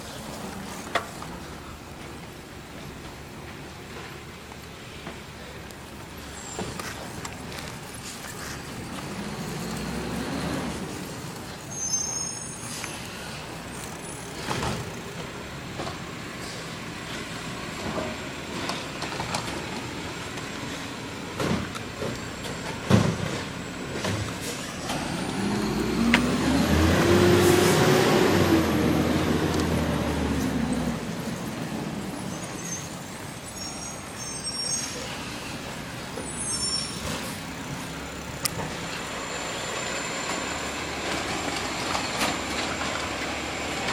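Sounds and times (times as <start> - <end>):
garbage truck engine running: 5.6 - 33.6, 35.1 - 43.9
brief high squeaks: 11.7 - 13.0, 32.2 - 35.2, 36.2 - 37.4.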